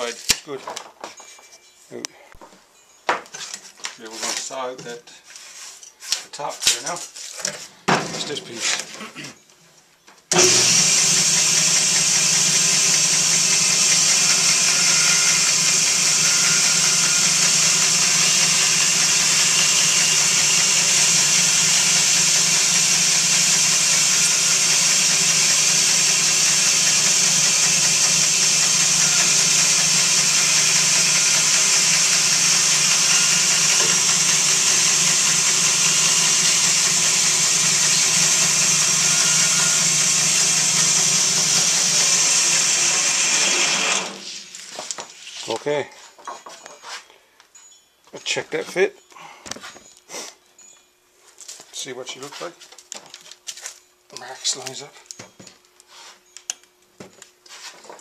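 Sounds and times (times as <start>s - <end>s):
electric power saw cutting: 10.3s - 45.0s.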